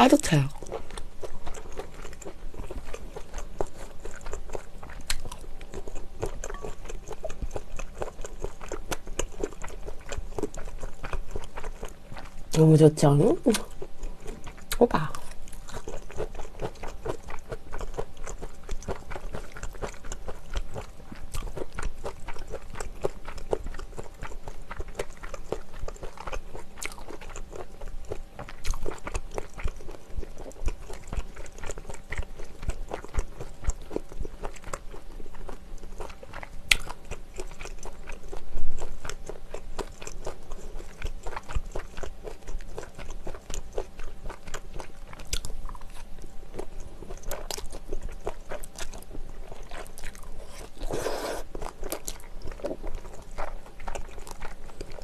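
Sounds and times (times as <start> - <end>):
person chewing food: 0.5 - 12.6, 13.5 - 55.0
loud mouth noise: 50.4 - 51.5.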